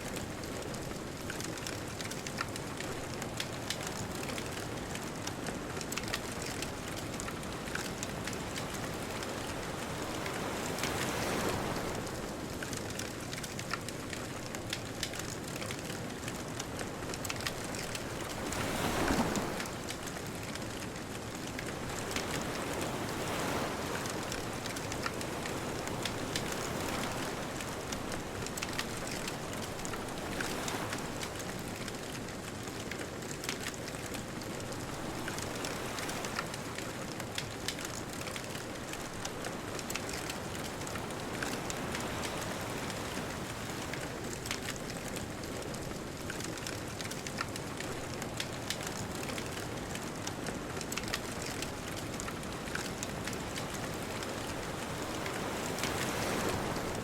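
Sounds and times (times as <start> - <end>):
bonfire crackling and popping: 0.1 - 23.7, 24.4 - 57.0
distant surf: 17.6 - 20.0, 50.8 - 57.0.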